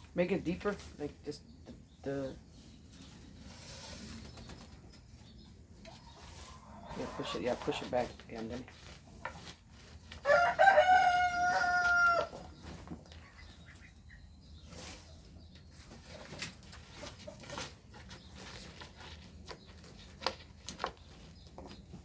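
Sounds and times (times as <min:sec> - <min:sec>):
rooster crowing: 0:10.2 - 0:12.4.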